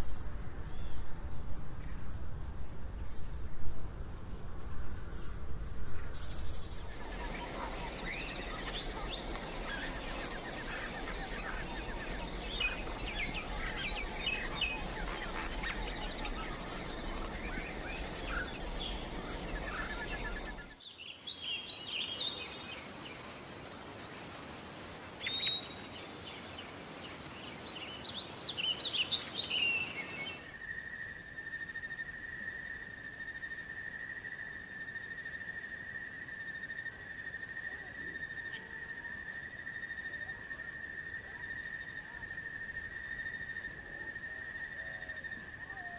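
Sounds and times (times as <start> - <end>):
bird chirps chorus: 5.0 - 23.6, 24.5 - 45.9
steady hiss: 6.2 - 37.6
insect trill: 6.7 - 20.8.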